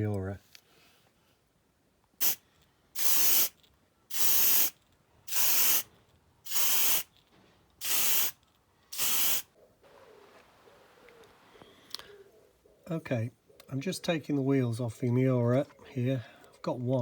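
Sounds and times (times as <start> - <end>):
pressurised spray hissing bursts: 2.2 - 2.4, 3.0 - 7.1, 7.8 - 9.5.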